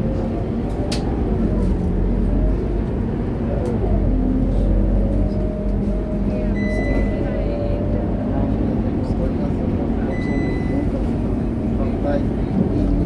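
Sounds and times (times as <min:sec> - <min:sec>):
bus diesel engine droning: 0:00.0 - 0:13.0.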